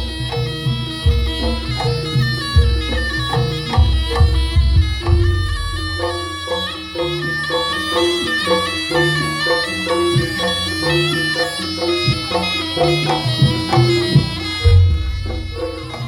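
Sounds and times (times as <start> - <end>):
drums: 0.0 - 6.5, 9.0 - 16.0
reedy shawm melody: 0.0 - 16.0
deep boom: 14.7 - 15.9.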